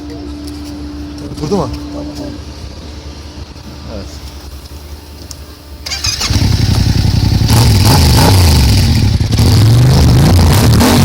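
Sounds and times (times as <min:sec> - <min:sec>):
motorcycle engine revving: 0:05.8 - 0:11.0.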